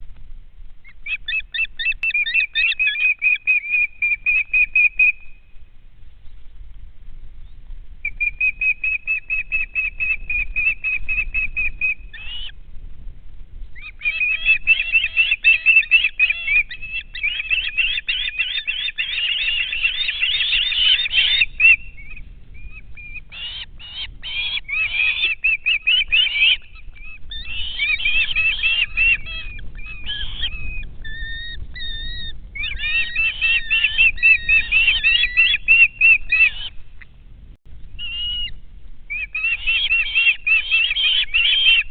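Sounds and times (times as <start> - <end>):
chattering bird calls: 0.9 - 5.3, 13.8 - 36.8, 39.1 - 41.9.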